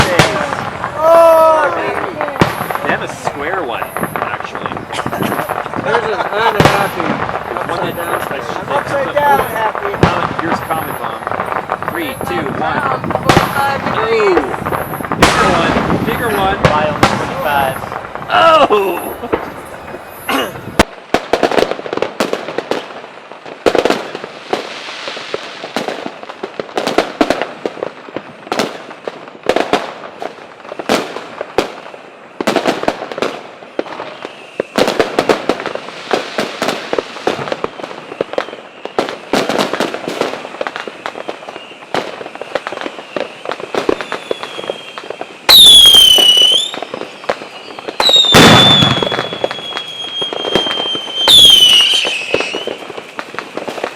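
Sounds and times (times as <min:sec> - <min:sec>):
firework falling whistle: 0:00.0 - 0:16.6, 0:33.9 - 0:34.9, 0:36.7 - 0:53.9
fireworks bangs and crackling: 0:00.0 - 0:53.9.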